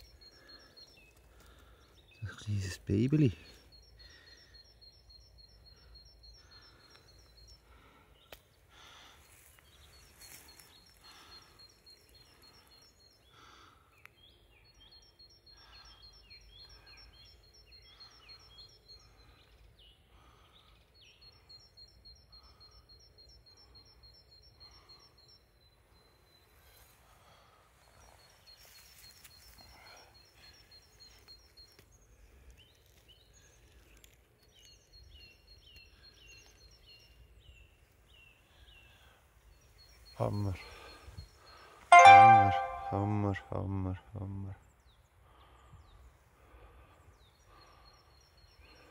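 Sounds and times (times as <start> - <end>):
bird chirps: 32.8 - 43.6
bird repeating rapid high notes: 41.9 - 43.5.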